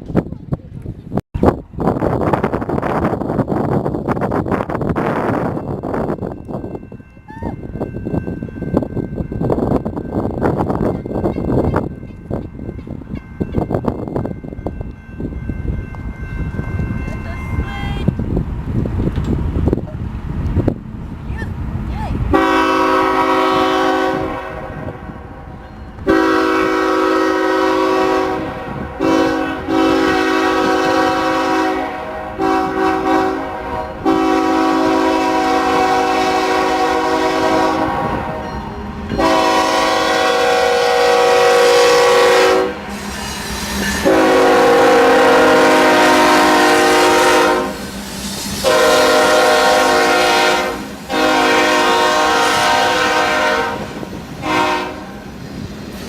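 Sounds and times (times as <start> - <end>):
locomotive air horn blasts: 22.3 - 25.4, 26.0 - 38.5, 39.2 - 42.9, 44.0 - 47.9, 48.6 - 55.2.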